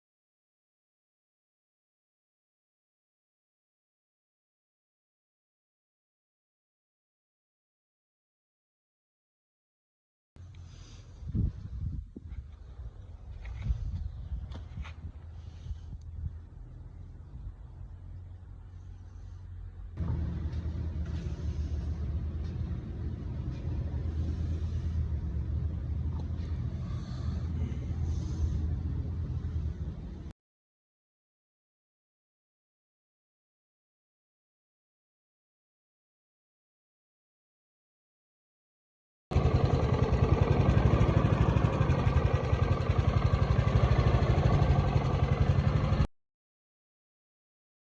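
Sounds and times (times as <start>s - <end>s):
lawn mower engine running: 20.0s - 26.3s, 39.4s - 46.0s.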